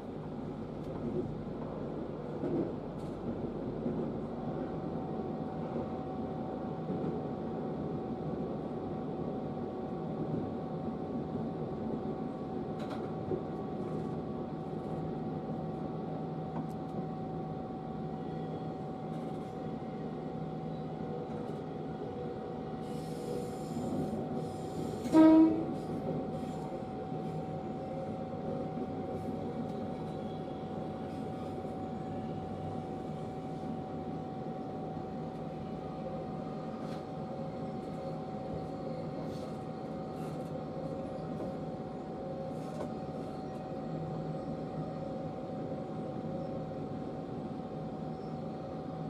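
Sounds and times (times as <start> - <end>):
train horn blast: 25.0 - 25.9.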